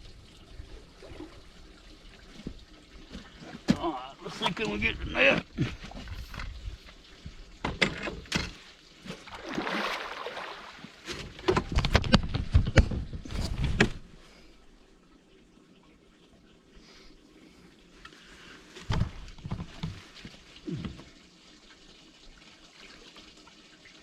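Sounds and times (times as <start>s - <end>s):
water splashing: 0.8s - 7.4s, 8.2s - 11.8s.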